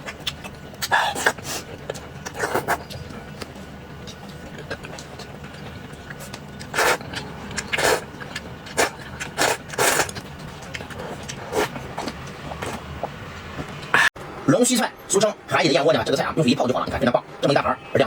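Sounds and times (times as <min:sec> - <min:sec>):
noodle slurping: 0:00.1 - 0:03.1, 0:04.4 - 0:13.2.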